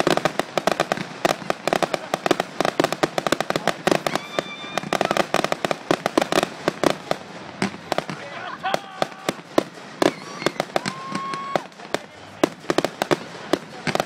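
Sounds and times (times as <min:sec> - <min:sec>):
fireworks bangs and crackling: 0:00.0 - 0:14.0
high firework whistle: 0:03.9 - 0:05.5, 0:10.0 - 0:11.8.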